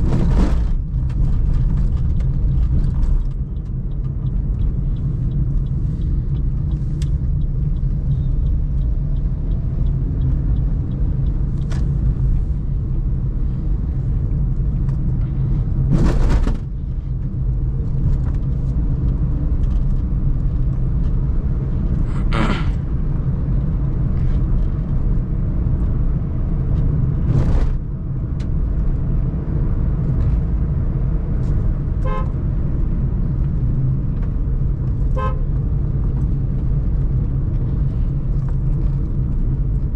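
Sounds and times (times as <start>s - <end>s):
car engine and road noise: 0.0s - 39.9s
vehicle horns honking: 32.0s - 32.4s, 35.2s - 35.5s.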